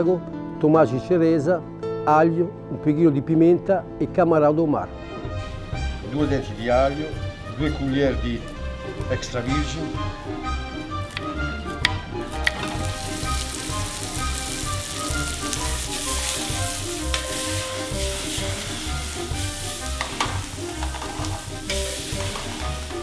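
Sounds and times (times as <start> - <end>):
background music with a beat: 5.3 - 23.0
food sizzling in a pan: 12.2 - 23.0.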